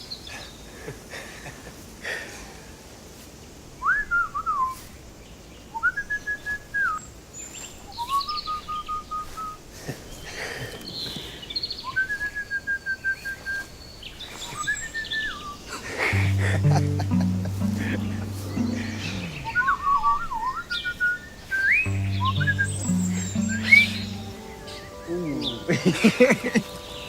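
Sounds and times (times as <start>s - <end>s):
whistled bird phrases: 3.8s - 4.8s, 5.7s - 9.6s, 11.0s - 15.7s, 16.6s - 25.7s
faint high bird chirps: 16.2s - 24.9s.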